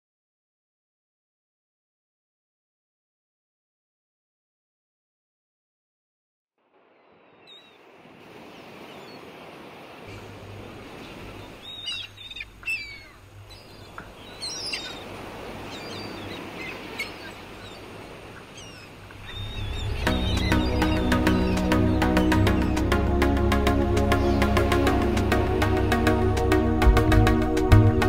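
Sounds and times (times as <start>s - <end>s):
bird chirps: 7.0s - 7.9s, 10.9s - 22.8s.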